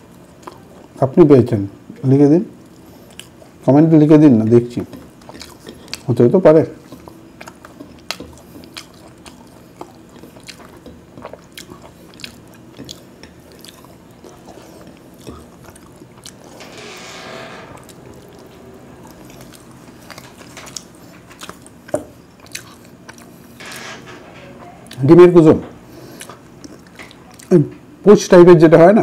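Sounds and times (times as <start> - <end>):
wet chewing mouth sounds: 0.0 - 1.0, 2.6 - 3.6, 4.8 - 16.5, 19.0 - 23.6, 25.8 - 27.5.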